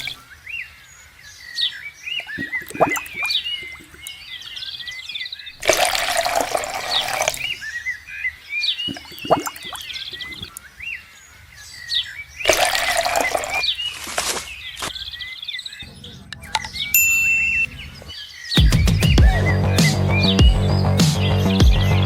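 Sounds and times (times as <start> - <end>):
water splashing: 0.0 - 0.2, 2.2 - 4.2, 5.6 - 7.6, 8.8 - 10.6, 12.4 - 15.0
birds chirping: 0.0 - 22.0.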